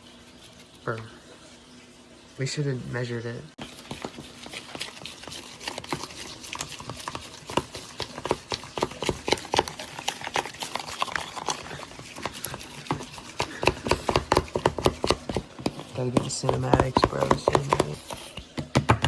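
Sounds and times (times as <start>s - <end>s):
kitchen clicking and tapping: 3.7s - 19.0s.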